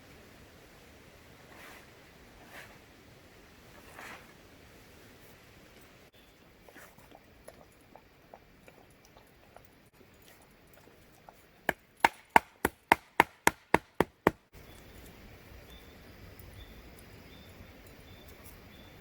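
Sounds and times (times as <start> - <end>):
sharp strikes on wood: 12.0 - 14.4.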